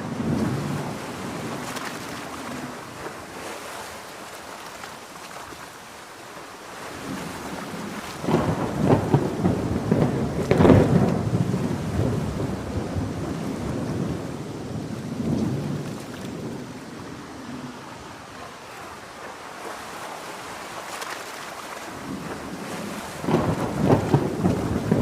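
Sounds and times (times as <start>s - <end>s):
heavy rain: 0.0s - 25.0s
rolling thunder: 7.0s - 18.3s, 22.0s - 25.0s.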